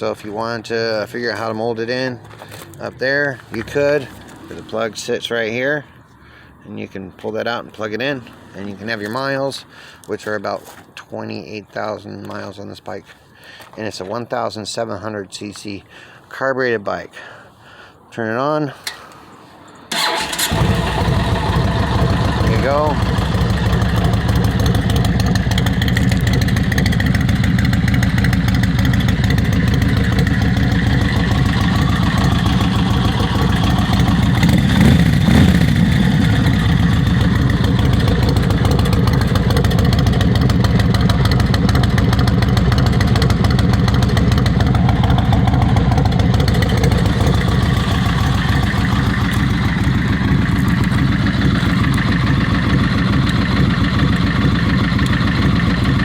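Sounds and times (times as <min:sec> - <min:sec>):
motorcycle engine idling: 0:20.0 - 0:56.0.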